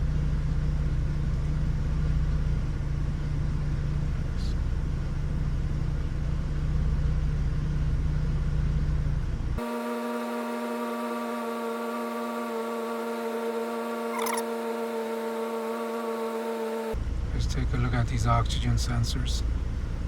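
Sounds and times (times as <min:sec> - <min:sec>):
engine idling with low rumble: 0:00.0 - 0:09.7, 0:16.9 - 0:20.0.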